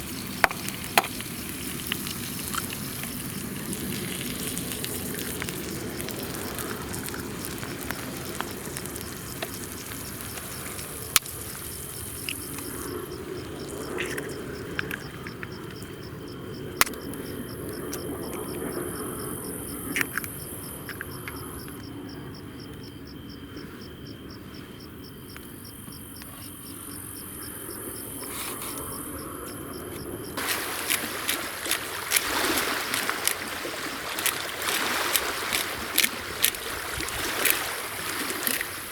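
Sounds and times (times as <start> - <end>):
cricket chirping trill: 0.0 - 38.9
sharp clicks: 16.8 - 18.6.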